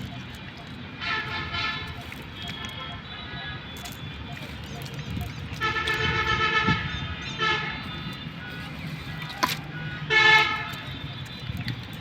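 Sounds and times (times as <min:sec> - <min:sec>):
vehicle horn honking: 0:01.0 - 0:03.5, 0:05.6 - 0:08.5, 0:09.7 - 0:11.0.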